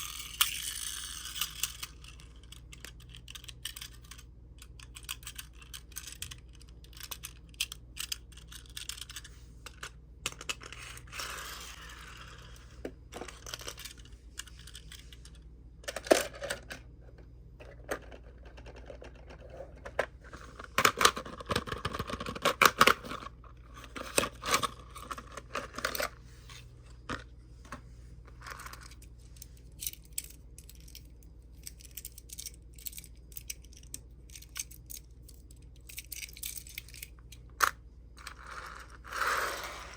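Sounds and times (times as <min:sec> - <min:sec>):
toy cars clicking and tapping: 0:00.0 - 0:12.2, 0:29.8 - 0:39.9
rustling of toy parts: 0:00.0 - 0:39.9.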